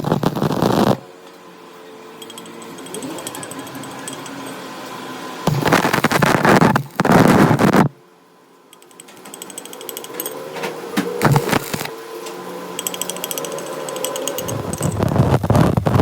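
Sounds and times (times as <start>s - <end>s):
machine humming: 0.0s - 16.0s
rapid ratchet-like ticking: 12.8s - 15.1s.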